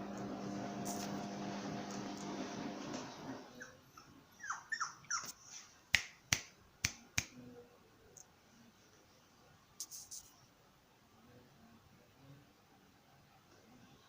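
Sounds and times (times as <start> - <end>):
puppy whining and yelping: 3.5 - 5.5.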